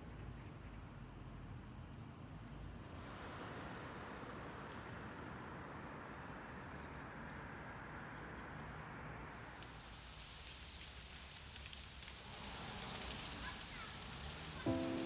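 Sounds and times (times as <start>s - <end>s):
steady background hiss: 9.3s - 15.0s.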